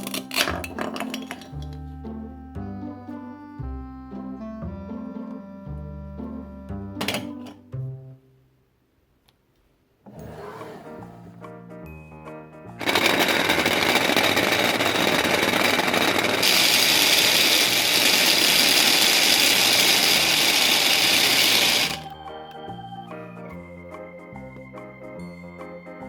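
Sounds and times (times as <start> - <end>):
toy blender motor whirring: 12.8 - 22.2.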